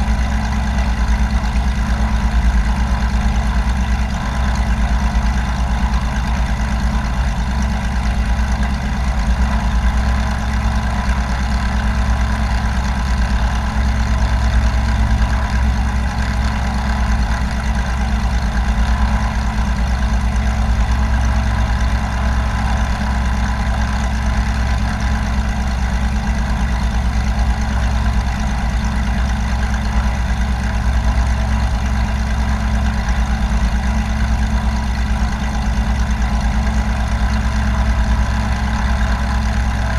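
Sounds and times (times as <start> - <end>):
propeller aircraft engine drone: 0.0 - 39.9.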